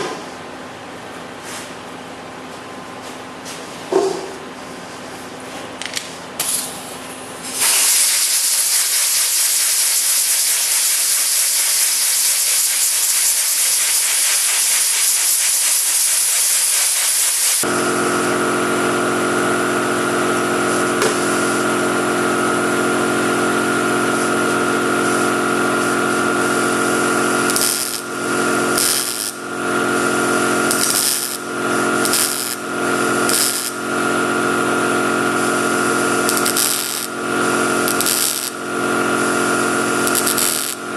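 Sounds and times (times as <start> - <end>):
loud steady hiss: 7.5 - 17.7, 25.0 - 33.9, 35.3 - 40.9
power tool whining: 24.6 - 40.9.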